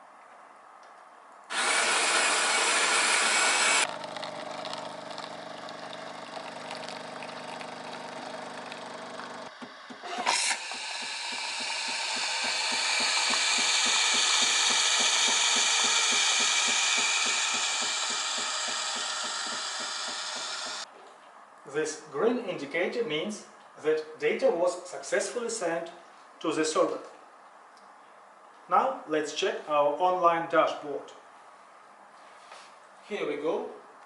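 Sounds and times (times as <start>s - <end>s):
steam hissing: 1.5s - 3.9s, 9.6s - 20.8s
coffee machine grinding beans: 1.5s - 20.9s
pump humming: 1.5s - 20.9s.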